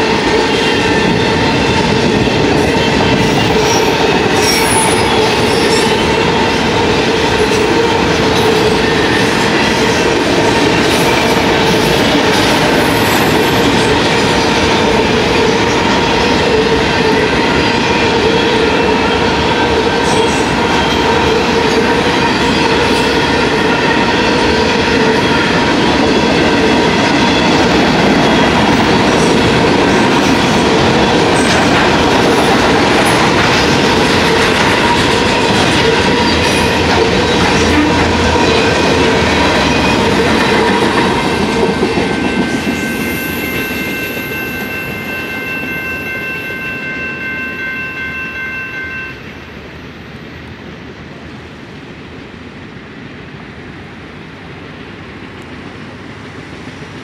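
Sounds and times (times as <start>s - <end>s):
freight train wheels clattering: 0.0s - 44.9s.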